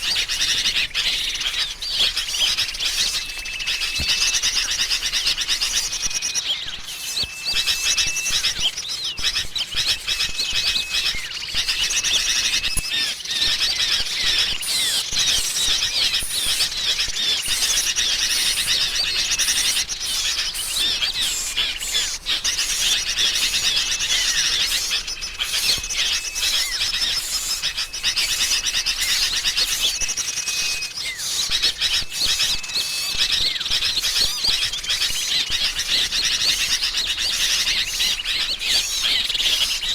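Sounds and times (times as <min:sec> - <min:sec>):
bulbuls chattering: 0:00.0 - 0:39.9
short level whistles: 0:05.8 - 0:11.4.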